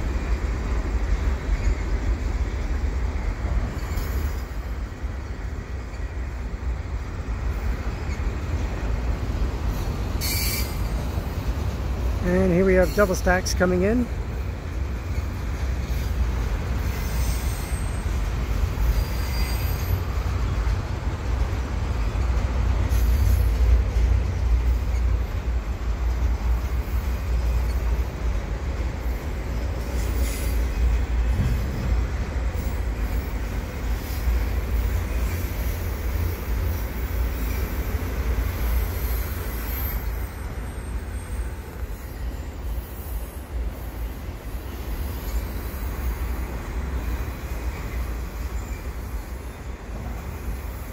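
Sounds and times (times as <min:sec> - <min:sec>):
freight train wheels rumbling: 0:00.0 - 0:50.9
wheel squeal: 0:10.2 - 0:10.9, 0:16.8 - 0:18.1, 0:18.8 - 0:20.0.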